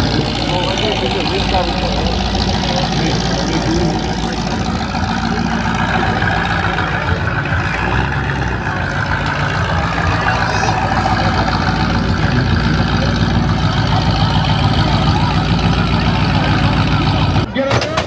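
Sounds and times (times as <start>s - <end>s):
car engine idling: 0.0s - 17.7s.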